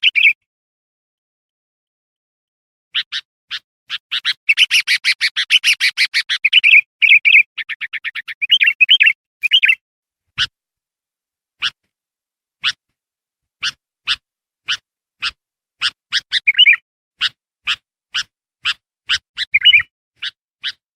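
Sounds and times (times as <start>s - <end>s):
bird singing: 0.0s - 0.4s, 3.0s - 9.8s, 15.8s - 17.3s, 18.2s - 20.8s.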